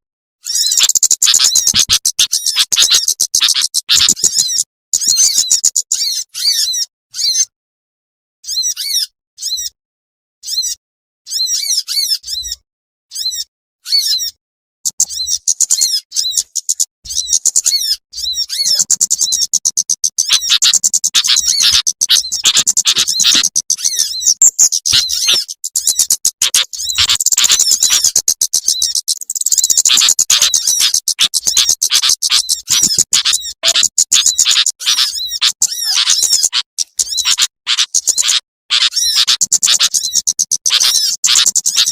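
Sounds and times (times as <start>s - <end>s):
small birds calling: 0.4s - 7.5s, 8.4s - 9.8s, 10.4s - 41.9s.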